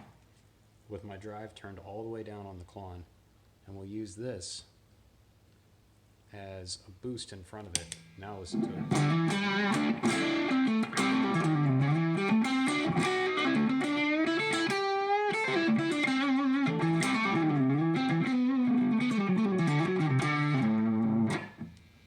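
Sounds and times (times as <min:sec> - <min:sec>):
overdriven electric guitar melody: 0:08.6 - 0:21.8.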